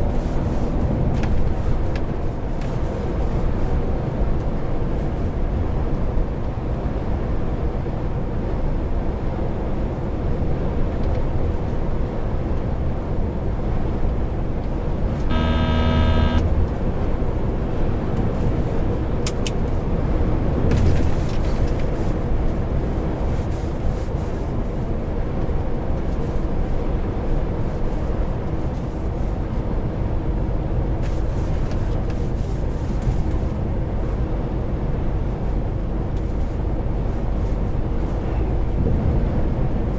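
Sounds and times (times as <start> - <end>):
lorry engine and road noise: 0.0 - 39.9
single pitched tone: 15.1 - 16.6.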